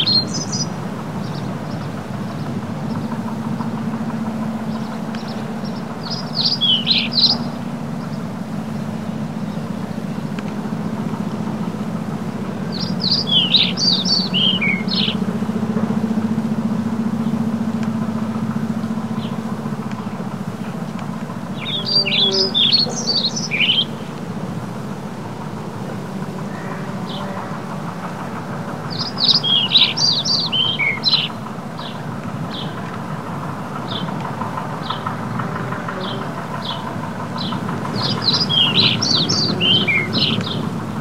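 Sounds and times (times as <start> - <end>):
songbird chirping: 0.0 - 41.0
steady low hum: 0.0 - 41.0.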